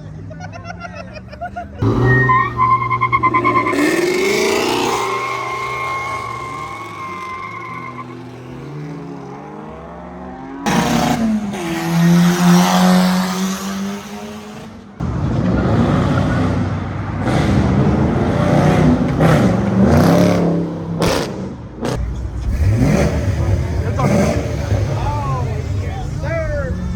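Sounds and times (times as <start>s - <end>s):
car engines revving: 0.0s - 26.9s.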